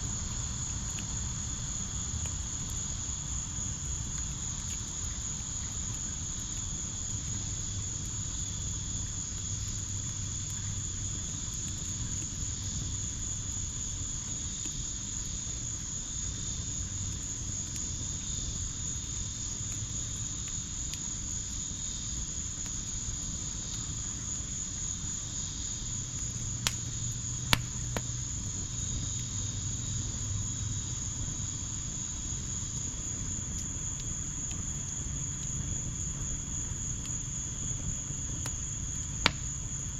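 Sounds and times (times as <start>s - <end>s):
crickets chirping: 0.0s - 39.9s
wood fire popping: 0.0s - 39.9s.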